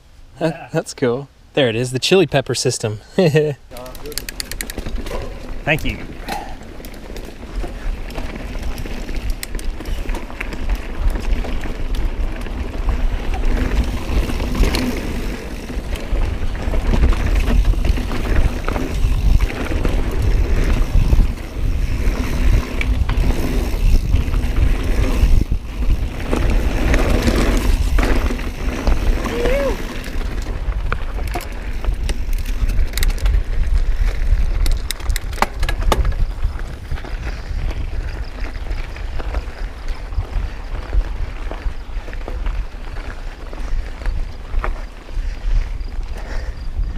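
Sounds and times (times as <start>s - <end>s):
bike rattling over rocks: 3.7s - 46.9s
tyres rolling on rocks: 3.8s - 45.0s
wind rumble on microphone: 4.7s - 46.9s.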